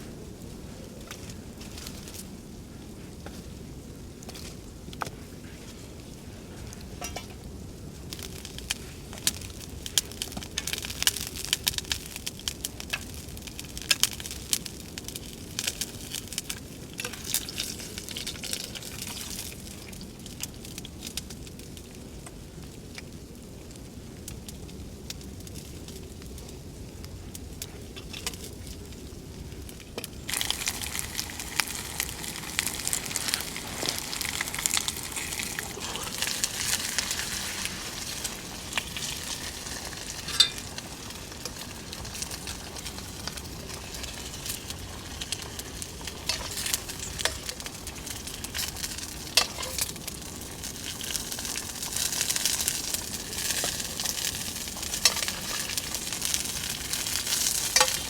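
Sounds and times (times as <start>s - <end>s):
food sizzling in a pan: 30.2s - 58.0s.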